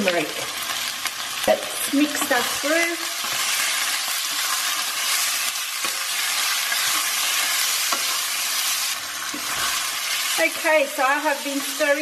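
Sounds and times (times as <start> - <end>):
chicken sizzling in hot oil: 0.0 - 12.0
spatula stirring: 3.2 - 10.7.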